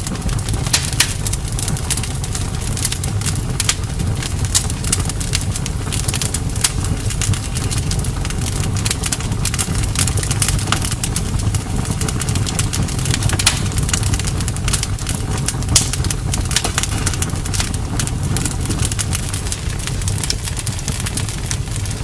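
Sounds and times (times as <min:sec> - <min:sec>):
burning wood crackling and popping: 0:00.0 - 0:22.0
campfire flames rumbling: 0:00.0 - 0:22.0.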